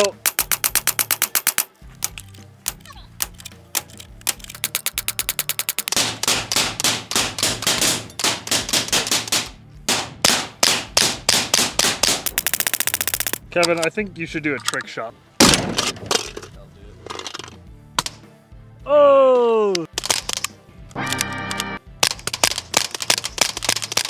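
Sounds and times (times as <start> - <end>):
pistol gunfire: 4.6 - 13.4, 15.4 - 16.1.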